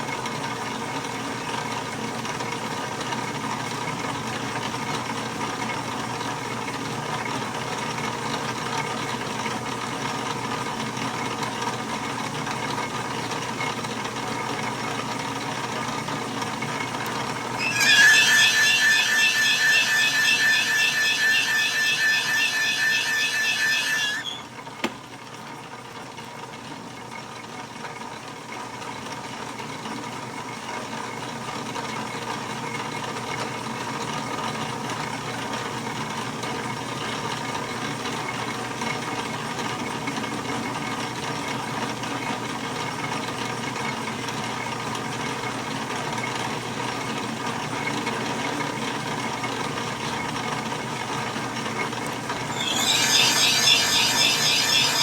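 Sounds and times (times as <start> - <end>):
lathe motor humming: 17.6 - 24.4, 52.4 - 55.0.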